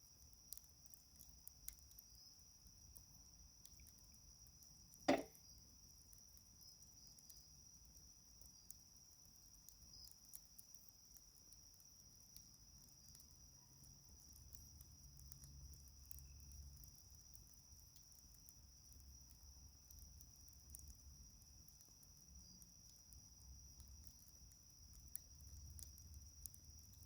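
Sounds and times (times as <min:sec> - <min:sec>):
wood fire crackling: 0:00.0 - 0:27.0
night insects chorus: 0:00.1 - 0:27.0
sharp knock: 0:05.1 - 0:05.3.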